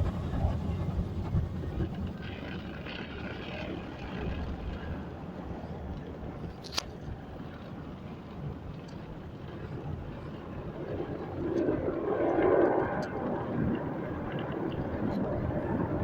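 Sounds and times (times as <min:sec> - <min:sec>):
car wash equipment rumbling: 0:00.0 - 0:02.6.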